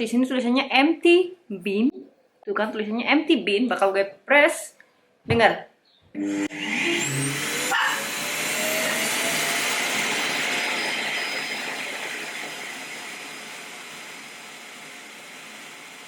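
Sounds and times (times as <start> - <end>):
motor whine: 6.2 - 16.0
rushing suction: 6.4 - 16.0.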